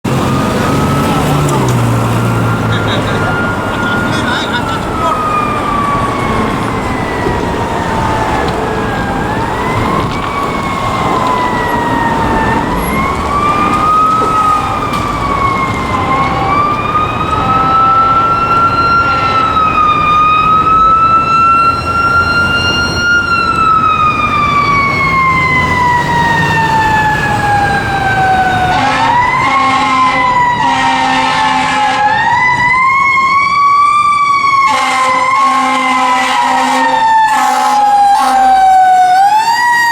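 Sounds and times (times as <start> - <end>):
fire engine siren wailing: 0.0 - 39.9
low horn blasts: 15.8 - 19.8, 28.6 - 32.2, 34.7 - 38.5.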